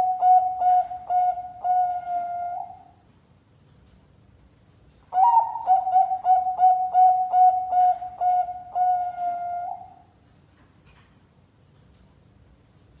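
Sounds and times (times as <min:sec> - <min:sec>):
dove cooing: 0:00.0 - 0:02.9, 0:05.2 - 0:10.0.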